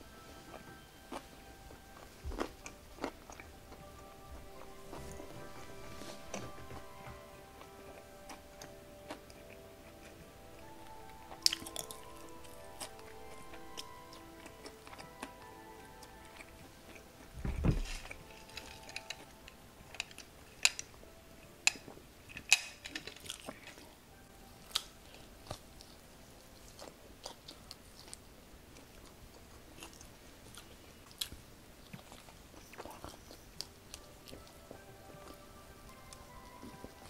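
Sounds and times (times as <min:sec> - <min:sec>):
short low thump: 0:17.4 - 0:17.9
chewing fried chicken: 0:21.7 - 0:37.0.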